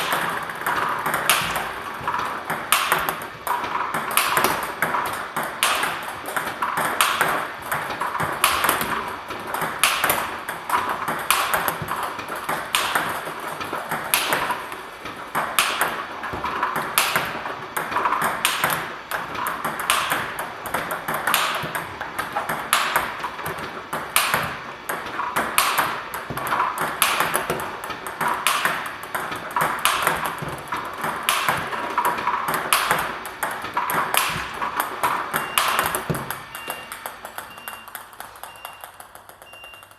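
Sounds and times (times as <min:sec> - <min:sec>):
ping pong ball bouncing on table: 0:00.0 - 0:39.9
ping pong ball hitting racket: 0:00.0 - 0:39.9.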